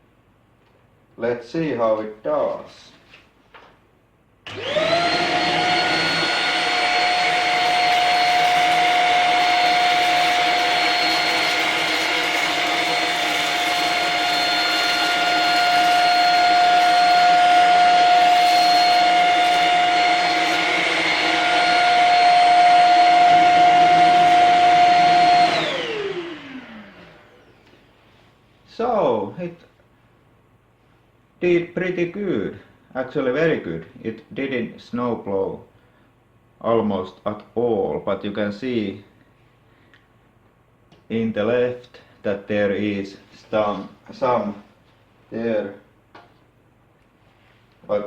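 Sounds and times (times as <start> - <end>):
vacuum motor winding down: 4.5 - 27.8
vacuum cleaner whining: 4.5 - 27.9.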